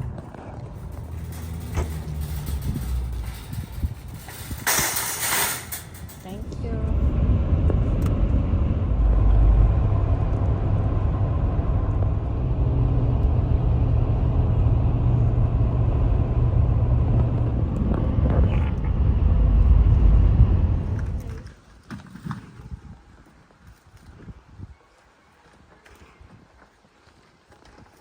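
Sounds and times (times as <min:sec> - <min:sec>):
motor vehicle engine rumbling: 0:00.0 - 0:21.6.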